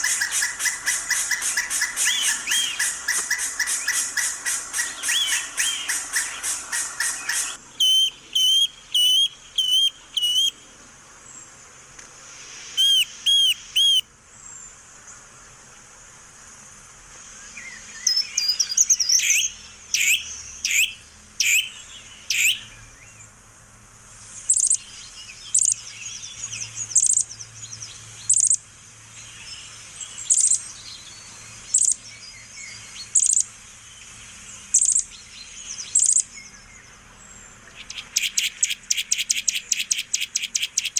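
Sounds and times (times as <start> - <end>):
parrot calling: 0.0 - 10.6, 12.8 - 14.0, 19.1 - 22.7, 37.8 - 40.9.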